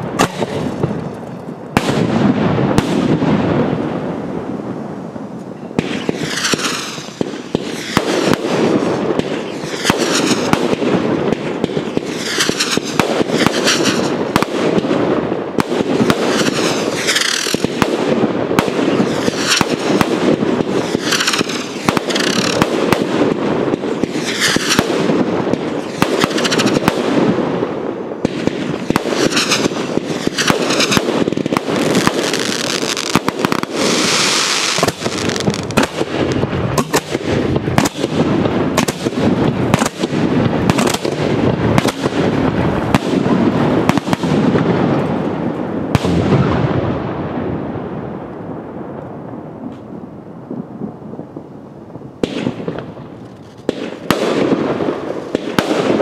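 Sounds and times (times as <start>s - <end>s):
fireworks bursting with bangs: 0.0s - 56.0s
high hissing swishes: 20.8s - 22.6s.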